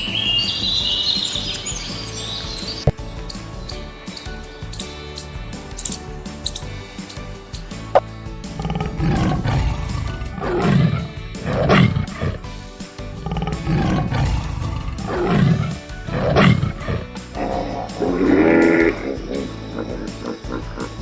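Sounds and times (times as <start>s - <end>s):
background music: 0.0s - 21.0s
large animal roaring: 8.6s - 12.4s, 13.2s - 21.0s.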